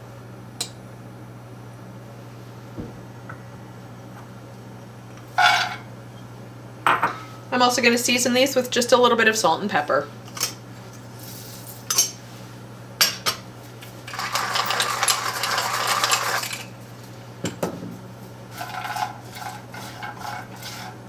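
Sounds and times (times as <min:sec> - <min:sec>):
scraping in frying pan: 0:05.4 - 0:05.9, 0:18.5 - 0:21.0.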